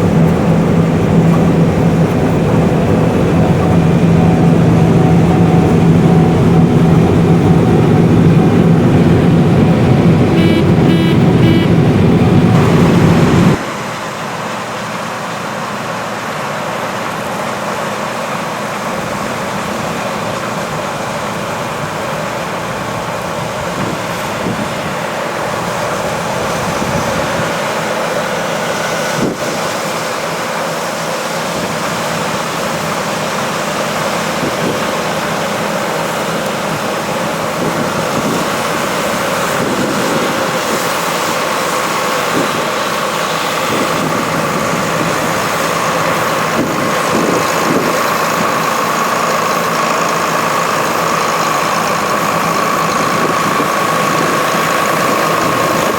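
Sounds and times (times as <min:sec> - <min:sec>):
machine whine: 0:00.0 - 0:15.5
combine harvester running: 0:00.0 - 0:55.9.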